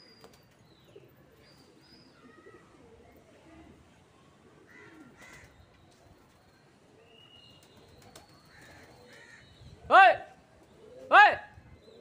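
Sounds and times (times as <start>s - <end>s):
distant bird calls: 4.5s - 12.0s.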